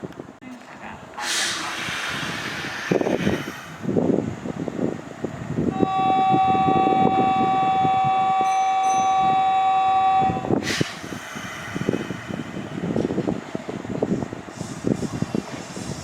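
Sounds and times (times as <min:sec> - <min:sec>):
train rumbling on rails: 0:00.0 - 0:16.0
train horn long note: 0:05.7 - 0:10.6.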